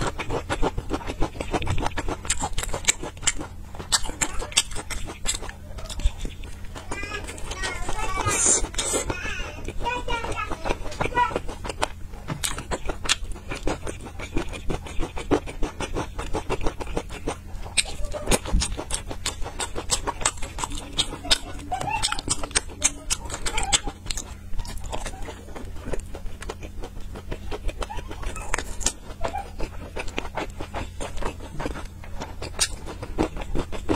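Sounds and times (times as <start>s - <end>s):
person chewing with lip smacks: 0.0s - 33.9s
steady low hum: 0.0s - 33.9s.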